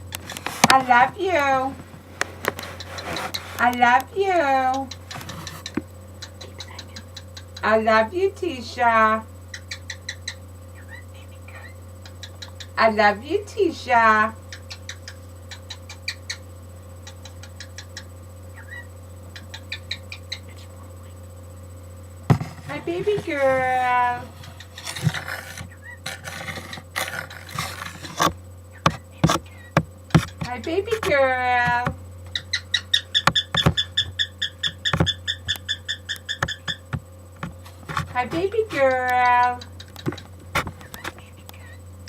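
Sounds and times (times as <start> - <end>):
bird clicking: 4.7 - 7.7, 14.5 - 16.4, 28.8 - 37.0, 38.7 - 41.6
soft bird chirp: 4.9 - 7.6, 17.0 - 21.2, 32.3 - 36.8
sharp clicks: 33.2 - 37.0, 38.8 - 41.6.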